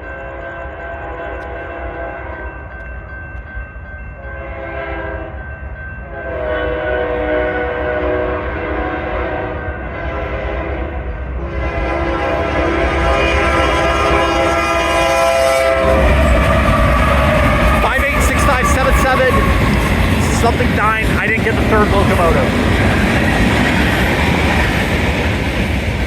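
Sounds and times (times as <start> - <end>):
train horn blasts: 0.0 - 2.5, 4.2 - 5.4, 6.1 - 22.5.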